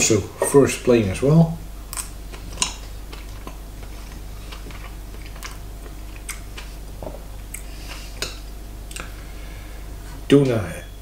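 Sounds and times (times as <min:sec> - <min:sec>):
steady low hum: 0:00.0 - 0:11.0
mouth clicks while chewing: 0:01.9 - 0:06.7, 0:07.5 - 0:09.2.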